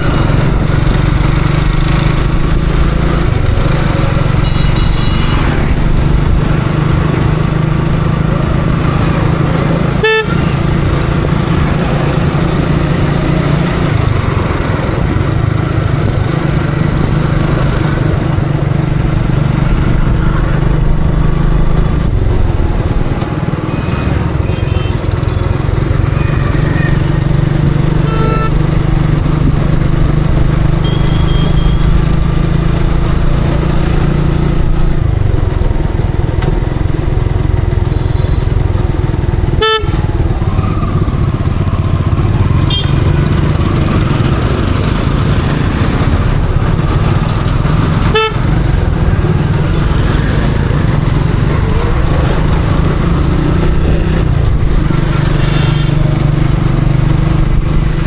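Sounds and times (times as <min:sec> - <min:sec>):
motorcycle engine running: 0:00.0 - 0:58.0
vehicle horn toots: 0:04.3 - 0:05.6, 0:10.0 - 0:10.7, 0:24.3 - 0:25.2, 0:28.0 - 0:28.8, 0:30.8 - 0:32.0, 0:39.5 - 0:40.0, 0:42.7 - 0:43.2, 0:48.1 - 0:48.6, 0:55.4 - 0:56.1.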